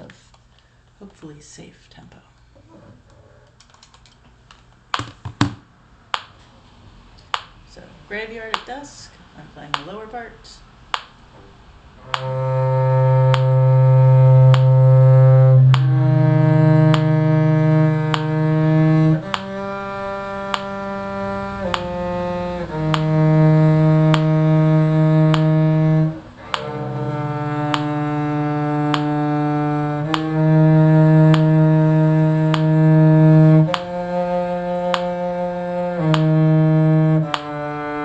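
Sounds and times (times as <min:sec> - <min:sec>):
low bowed string instrument: 0:11.4 - 0:38.0.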